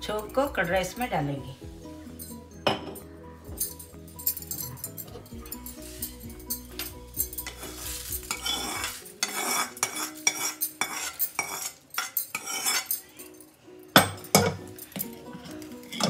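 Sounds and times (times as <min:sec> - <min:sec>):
faint background music: 0:00.0 - 0:16.0
spoon scraping and clinking pan: 0:03.7 - 0:13.3, 0:14.0 - 0:16.0.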